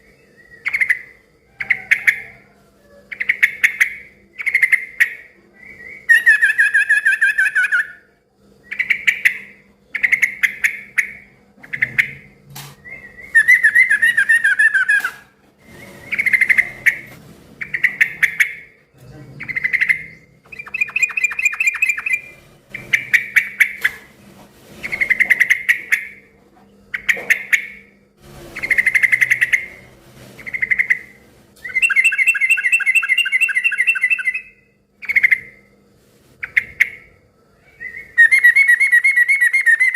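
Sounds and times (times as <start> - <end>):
bird singing chattering phrases: 8.7 - 15.2, 15.8 - 24.1, 24.8 - 26.2, 26.9 - 28.0, 28.6 - 29.8, 30.4 - 35.6.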